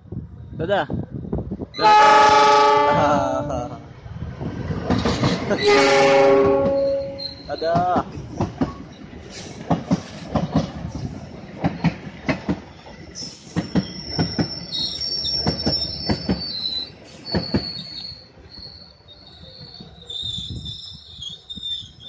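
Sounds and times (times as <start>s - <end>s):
train wheels clacking over joints: 4.7s - 5.6s, 6.4s - 18.2s
high wheel squeal: 5.5s - 7.8s, 12.7s - 22.0s.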